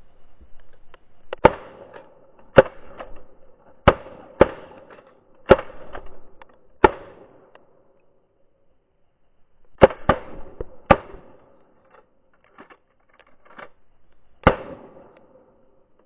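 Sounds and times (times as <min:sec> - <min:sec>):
shotgun blasts with echo: 0:01.3 - 0:03.2, 0:03.8 - 0:07.6, 0:09.8 - 0:11.6, 0:14.4 - 0:15.6.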